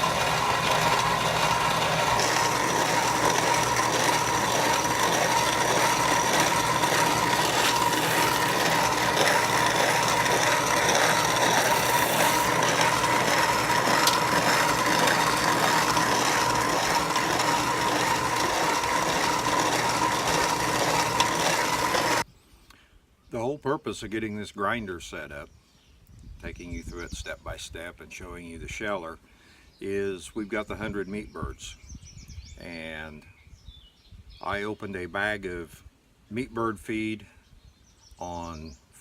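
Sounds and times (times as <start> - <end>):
feed grinder grinding corn: 0.0 - 22.2
mechanical clatter: 0.0 - 22.2
steady whining tone: 0.0 - 22.2.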